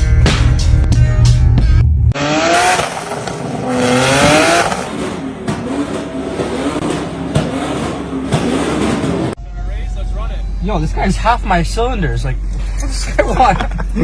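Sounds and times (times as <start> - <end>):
sports car engine accelerating: 2.1 - 9.4.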